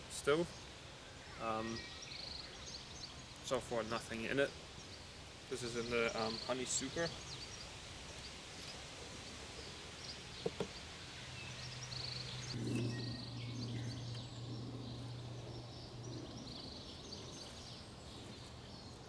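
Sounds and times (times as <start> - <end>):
small birds chirping: 0.0 - 19.0
low steady hum: 12.2 - 19.0.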